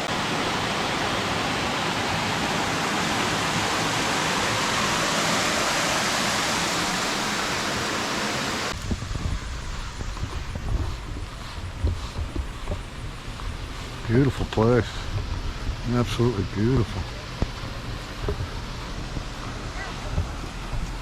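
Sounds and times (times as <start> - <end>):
rushing water: 0.0 - 21.0
low rumbling bumps: 8.7 - 21.0.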